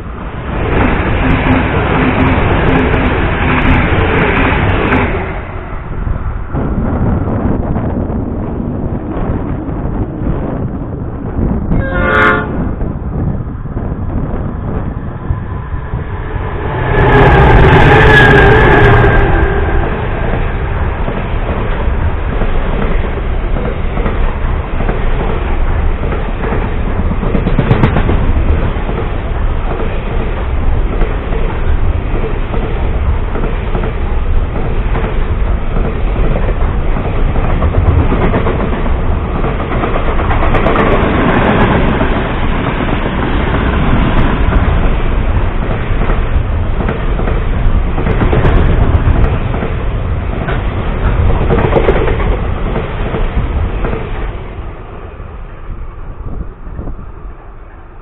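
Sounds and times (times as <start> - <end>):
train horn: 11.7 - 12.7, 16.5 - 20.2.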